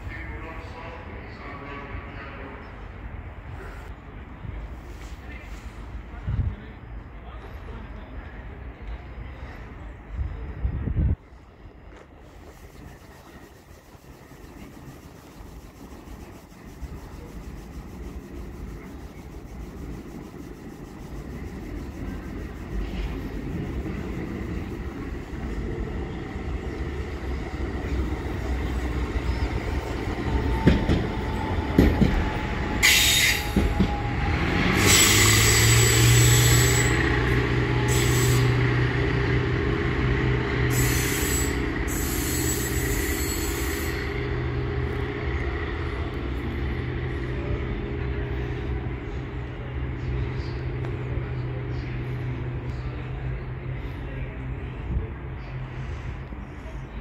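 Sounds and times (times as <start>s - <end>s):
train rumble: 0.0s - 57.0s
low engine drone: 12.2s - 30.1s
high wheel squeal: 32.2s - 38.7s, 40.7s - 44.4s.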